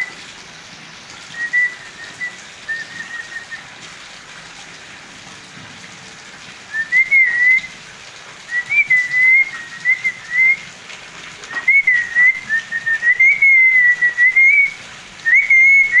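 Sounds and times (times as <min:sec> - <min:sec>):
parrot whistling a tune: 0:01.3 - 0:03.7, 0:06.7 - 0:07.8, 0:08.5 - 0:10.7, 0:11.5 - 0:16.0.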